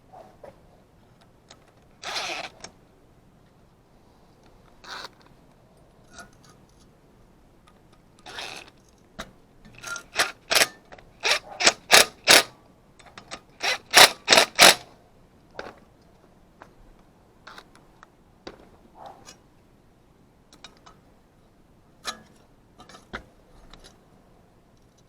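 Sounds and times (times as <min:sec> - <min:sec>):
sharp mechanical scraping strokes: 0:09.8 - 0:12.5, 0:13.6 - 0:14.8.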